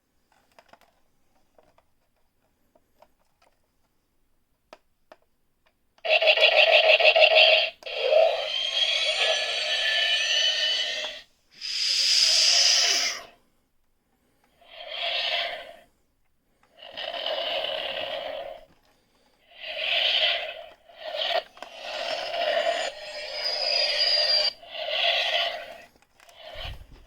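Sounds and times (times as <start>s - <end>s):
toy starship sound effects: 6.1s - 13.3s, 14.7s - 15.8s, 19.5s - 27.0s.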